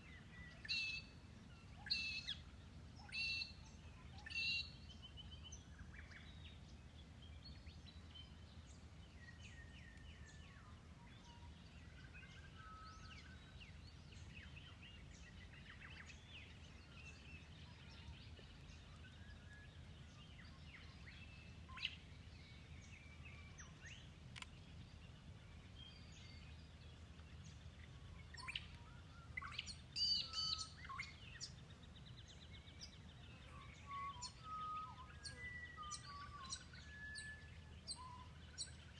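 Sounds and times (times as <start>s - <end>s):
birds chirping and whistling: 28.3s - 31.6s, 32.3s - 38.8s.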